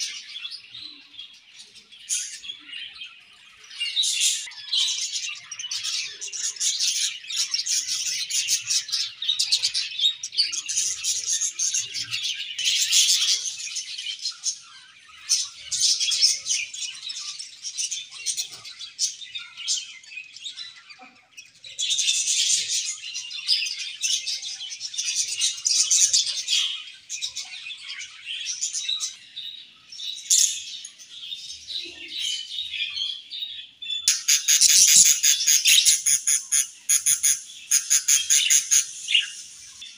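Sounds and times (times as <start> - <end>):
budgerigars chattering: 34.0 - 39.8.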